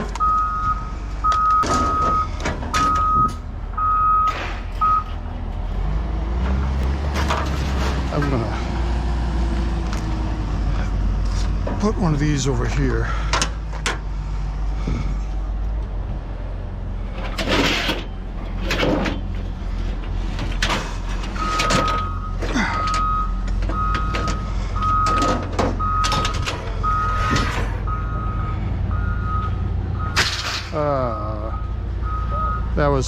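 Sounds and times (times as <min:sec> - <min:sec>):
reversing alarm beeping: 0:00.2 - 0:05.2, 0:21.4 - 0:30.2, 0:31.3 - 0:32.8
scrap metal clanks: 0:07.1 - 0:08.2, 0:17.1 - 0:23.0, 0:30.1 - 0:30.8.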